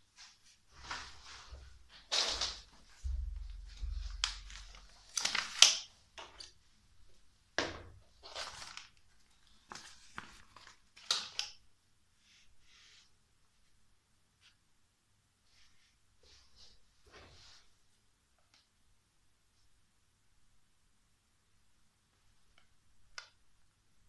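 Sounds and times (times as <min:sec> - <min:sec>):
paper rustling and crinkling: 0:00.1 - 0:06.6, 0:08.1 - 0:11.6.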